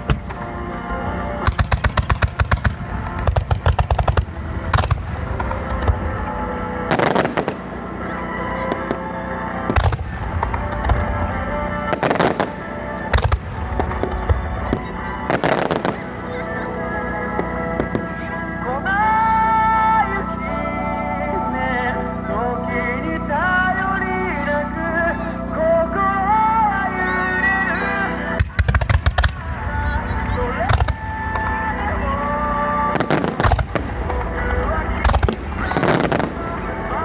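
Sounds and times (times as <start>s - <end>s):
fireworks crackling: 0.0s - 37.0s
music playing: 0.0s - 37.0s
fireworks bangs: 1.3s - 7.8s, 9.6s - 18.4s, 28.4s - 31.8s, 32.7s - 37.0s.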